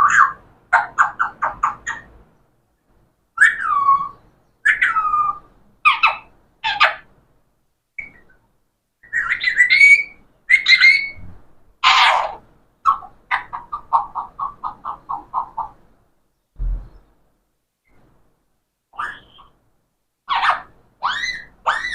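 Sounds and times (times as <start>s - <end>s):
parrot whistling and squawking: 3.4s - 7.0s, 9.0s - 13.5s, 19.0s - 19.6s, 20.3s - 21.9s.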